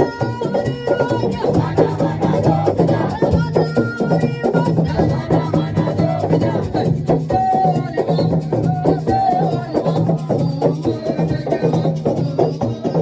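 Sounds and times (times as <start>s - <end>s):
rattles or shakers: 0.0s - 13.0s
voices: 0.0s - 13.0s
drum ensemble playing: 1.3s - 3.7s, 4.5s - 9.7s.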